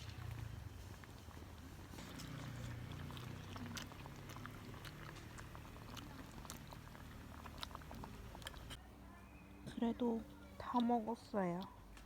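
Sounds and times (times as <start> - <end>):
person chewing: 0.0 - 8.8.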